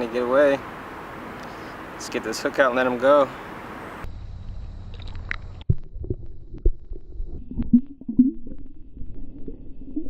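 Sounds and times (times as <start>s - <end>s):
low rumble: 4.0s - 10.0s.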